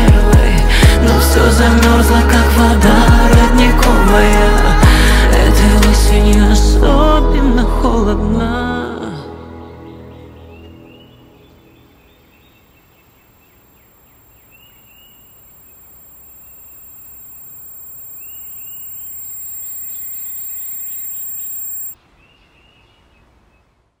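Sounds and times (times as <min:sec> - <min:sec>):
birds chirping: 0:10.5 - 0:22.0
steady outdoor hiss: 0:10.9 - 0:23.6.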